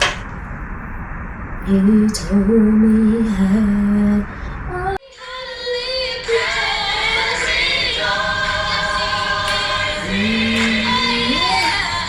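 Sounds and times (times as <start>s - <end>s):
choir singing held notes: 5.2s - 12.0s.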